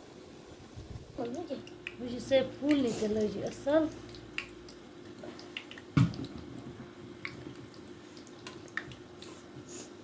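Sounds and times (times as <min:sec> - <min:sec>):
oil sizzling and popping: 0:00.9 - 0:09.6
utensil thump: 0:06.0 - 0:06.3.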